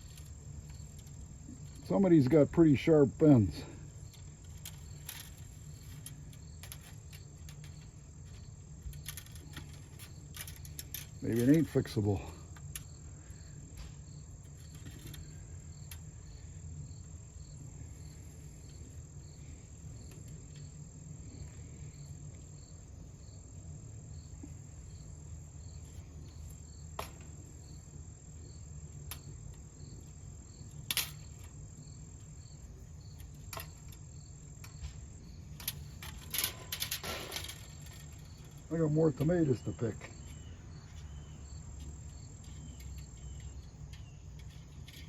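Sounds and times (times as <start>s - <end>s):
metal rake tines clicking: 0.0s - 12.9s, 30.7s - 31.6s, 35.5s - 45.0s
cricket chirping: 0.0s - 45.0s.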